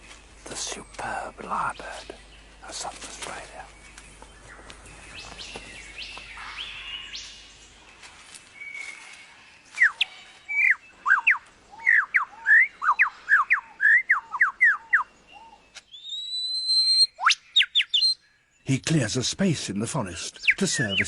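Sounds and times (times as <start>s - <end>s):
lyrebird whistled song: 9.7s - 18.6s, 20.3s - 21.0s
faint rising bird whistles: 9.8s - 15.1s, 15.9s - 18.2s.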